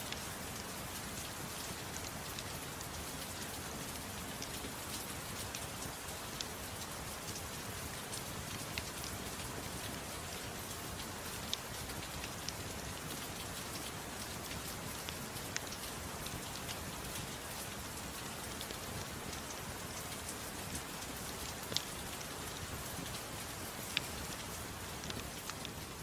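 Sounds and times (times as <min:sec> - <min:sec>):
soft rain: 0:00.0 - 0:26.0.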